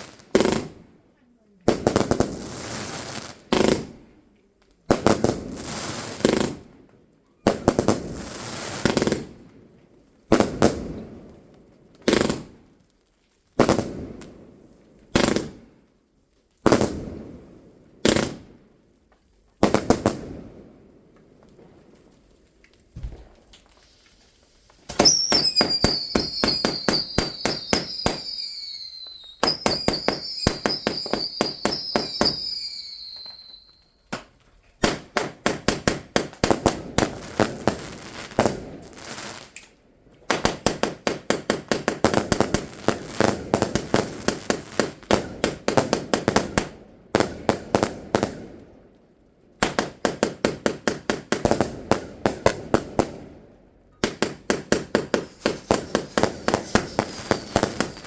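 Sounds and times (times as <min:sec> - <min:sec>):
fireworks bangs: 0:00.0 - 0:00.8, 0:22.8 - 0:39.6, 0:40.2 - 0:48.4, 0:54.0 - 0:58.0
falling firework whistle: 0:24.9 - 0:34.1, 0:54.9 - 0:58.0.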